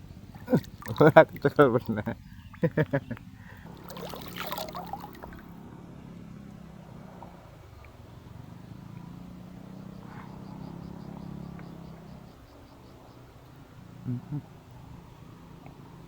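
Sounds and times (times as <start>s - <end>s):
low engine drone: 0.0s - 12.5s
splashy clatter: 0.4s - 2.7s, 3.7s - 5.6s.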